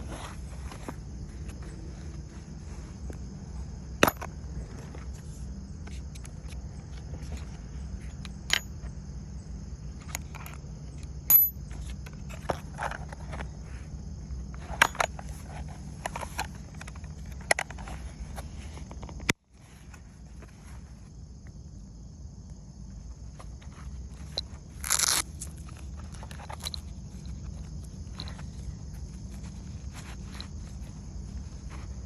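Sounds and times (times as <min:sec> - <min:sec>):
insects droning: 0:00.0 - 0:32.0
tools clicking and knocking: 0:14.7 - 0:15.3.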